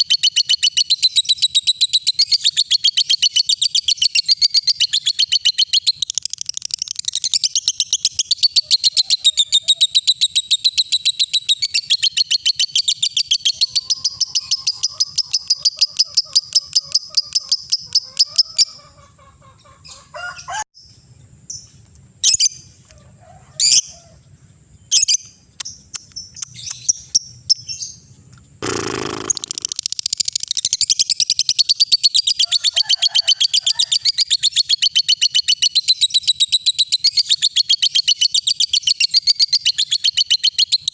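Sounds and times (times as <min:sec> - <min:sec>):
lovebird chirping: 0:00.0 - 0:18.9, 0:24.8 - 0:32.4.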